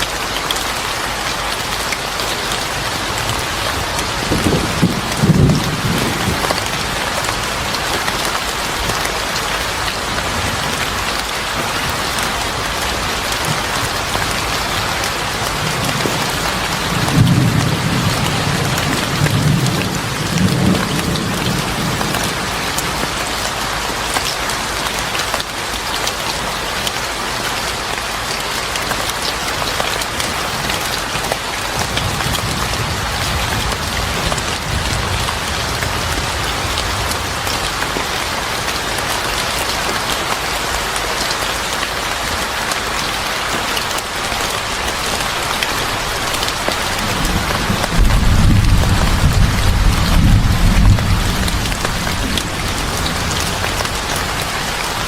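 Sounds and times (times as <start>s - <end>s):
heavy rain falling: 0.0s - 55.0s
thunder rumbling: 3.2s - 8.9s, 13.0s - 23.0s, 45.3s - 55.0s.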